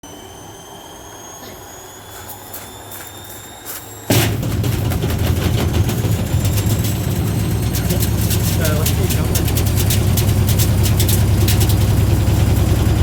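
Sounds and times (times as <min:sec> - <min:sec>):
washing machine motor whine: 0:00.0 - 0:13.0
stone banging in spinning drum: 0:04.1 - 0:12.0.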